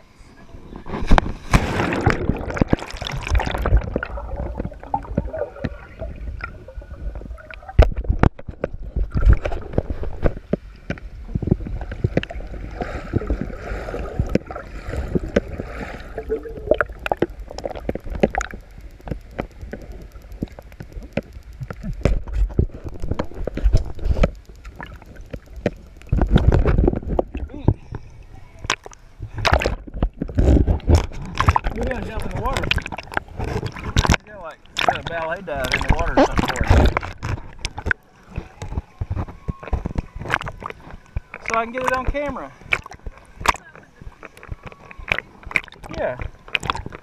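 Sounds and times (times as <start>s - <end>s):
water sloshing and gurgling: 0.0s - 47.0s.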